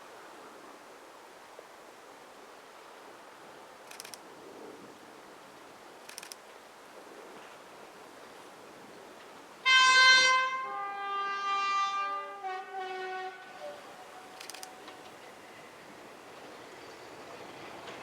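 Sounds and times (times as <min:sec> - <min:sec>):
two-tone locomotive horn: 0:09.6 - 0:15.8.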